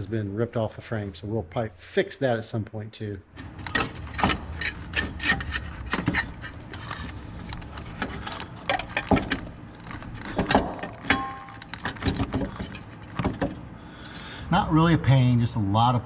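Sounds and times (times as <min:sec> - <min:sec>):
tools and metal parts clinking: 0:03.5 - 0:13.6.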